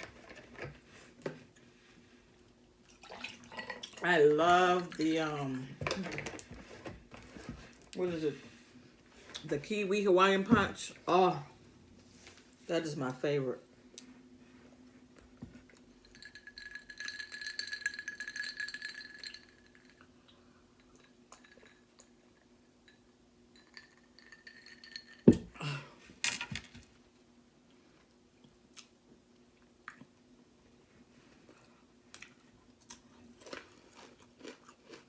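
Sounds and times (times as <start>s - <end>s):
faint steady hum: 0.0s - 35.0s
drinking glass clinking: 16.0s - 20.0s.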